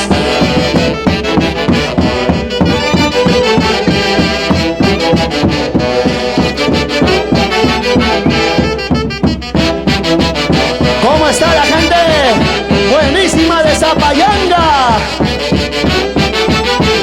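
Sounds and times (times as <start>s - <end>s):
brass melody: 0.0s - 17.0s
dance orchestra playing: 0.0s - 17.0s.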